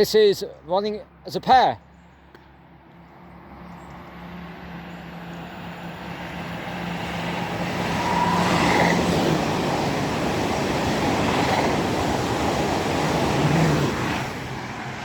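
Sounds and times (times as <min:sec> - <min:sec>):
train rushing past: 0:05.0 - 0:15.0.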